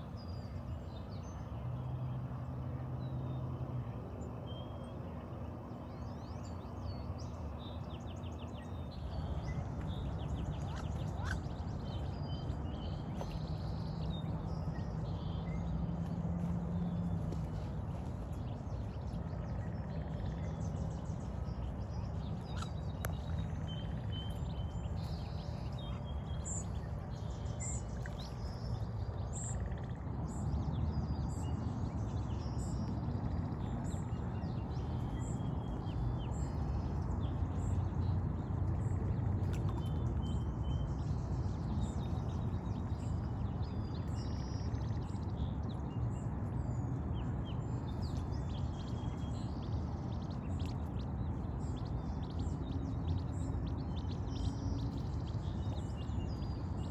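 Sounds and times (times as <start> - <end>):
low outdoor rumble: 0.0 - 56.9.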